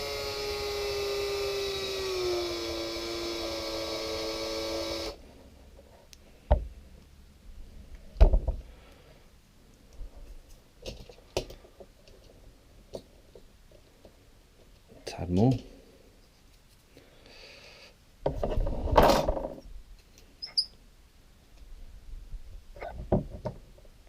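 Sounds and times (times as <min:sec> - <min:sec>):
small electric drill whining: 0:00.0 - 0:05.2.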